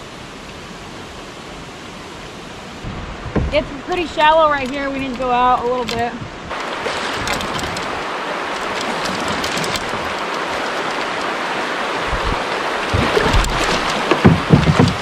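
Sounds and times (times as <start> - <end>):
river water rushing and splashing: 0.0 - 15.0
low thuds and buffeting: 2.8 - 11.3, 11.9 - 15.0.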